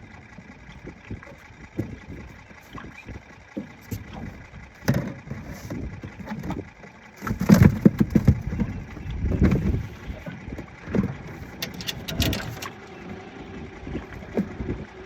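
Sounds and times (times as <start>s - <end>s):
wind buffeting microphone: 7.6s - 15.0s.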